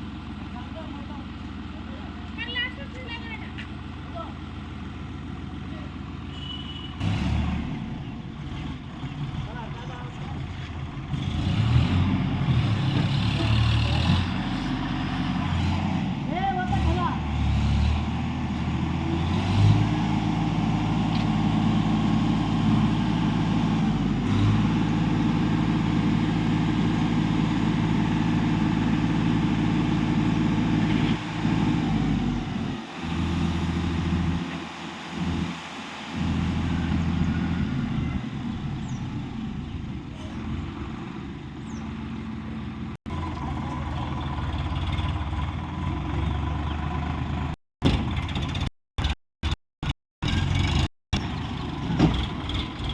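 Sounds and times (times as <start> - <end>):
heavy diesel engine running: 0.0 - 49.6, 50.2 - 52.9.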